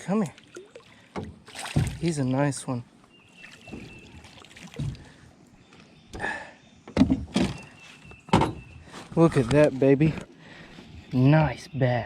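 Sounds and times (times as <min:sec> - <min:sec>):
thumps in a small boat: 0:01.1 - 0:02.2, 0:03.7 - 0:05.2, 0:06.9 - 0:09.6.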